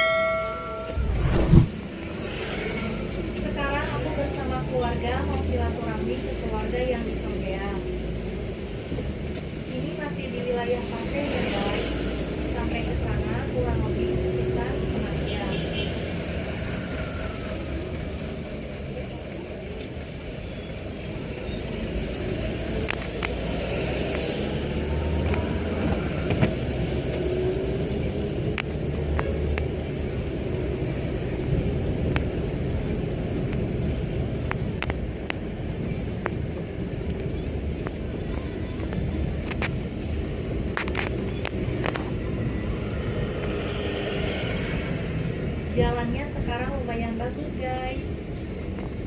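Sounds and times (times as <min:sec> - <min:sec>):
car engine and tyre rumble: 0:00.0 - 0:49.0.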